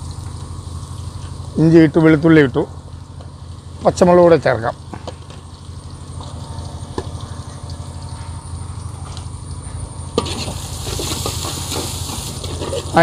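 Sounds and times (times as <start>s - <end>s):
food sizzling in a pot: 0.0s - 4.0s, 10.1s - 13.0s
low fire rumble: 0.0s - 13.0s.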